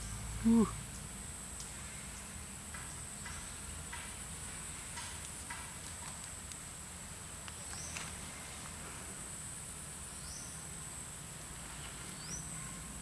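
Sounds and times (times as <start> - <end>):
crickets droning: 0.0 - 13.0.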